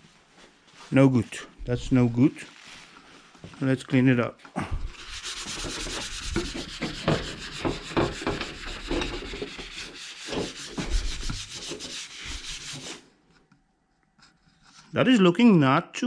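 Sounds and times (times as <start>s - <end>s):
scrubbing plastic: 4.9s - 13.0s.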